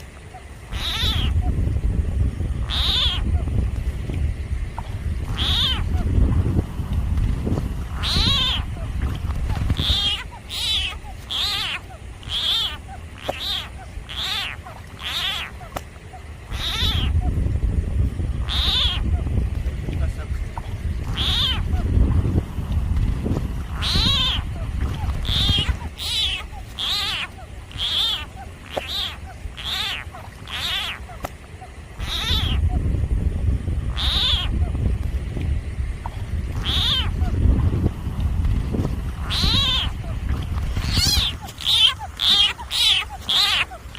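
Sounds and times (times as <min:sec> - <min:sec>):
low rumble: 0:00.0 - 0:43.9
frog screaming: 0:00.7 - 0:01.5, 0:02.6 - 0:03.4, 0:05.2 - 0:06.1, 0:07.9 - 0:09.0, 0:09.7 - 0:15.8, 0:16.5 - 0:17.3, 0:18.4 - 0:19.2, 0:21.0 - 0:21.8, 0:23.7 - 0:31.2, 0:32.0 - 0:32.8, 0:33.9 - 0:34.7, 0:36.5 - 0:37.3, 0:39.2 - 0:40.2, 0:40.8 - 0:43.9.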